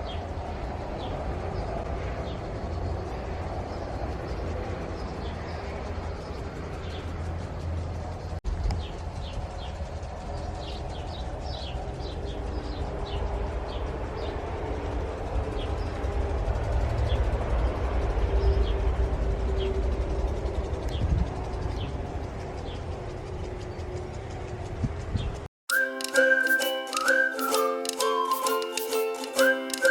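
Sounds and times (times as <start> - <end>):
small birds chirping: 0.0 - 14.9
steady low rumble: 0.0 - 25.5.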